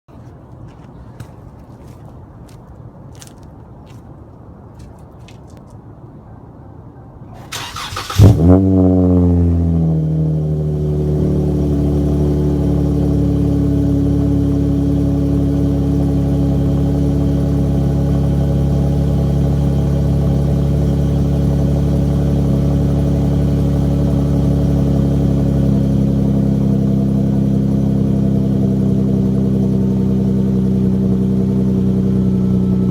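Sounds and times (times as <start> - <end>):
loud car exhaust idling: 8.2 - 32.9.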